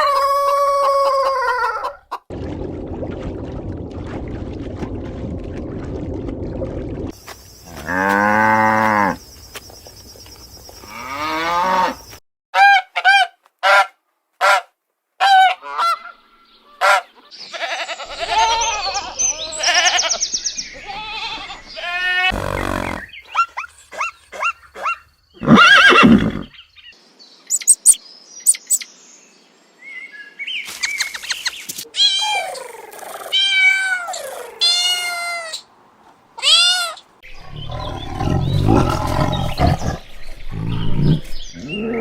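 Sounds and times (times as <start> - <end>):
animal cries and chirps: 15.9 - 26.6, 31.9 - 35.7, 36.4 - 37.1
long low animal roar: 37.3 - 42.0.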